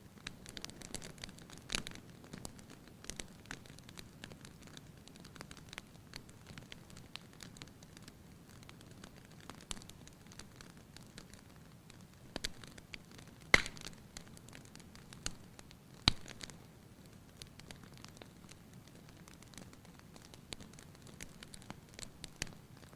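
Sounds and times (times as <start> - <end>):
wood fire crackling: 0.0 - 22.9
loud fire pops: 0.2 - 16.6.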